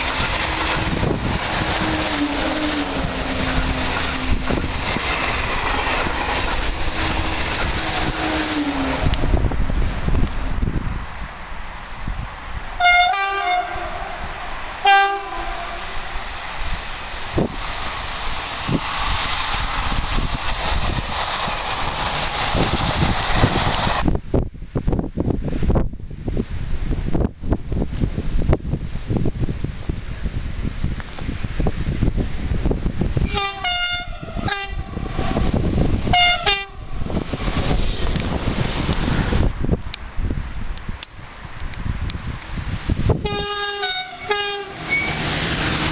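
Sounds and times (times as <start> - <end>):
steady rumble: 0.0 - 11.4, 34.0 - 43.6
passing train rumble: 0.0 - 45.9
two-note train horn blasts: 12.8 - 14.2, 14.8 - 15.9, 33.3 - 34.9, 36.1 - 36.8, 43.2 - 45.1.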